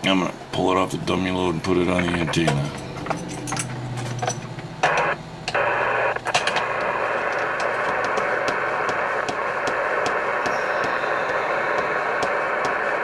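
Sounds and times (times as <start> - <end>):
radio static hiss: 0.0 - 3.2, 4.2 - 13.0
low hum: 0.2 - 13.0
clicks: 1.9 - 13.0.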